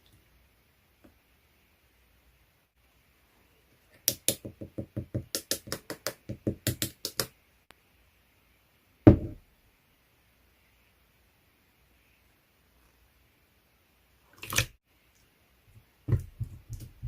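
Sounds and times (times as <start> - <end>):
loud thump: 9.1 - 9.4.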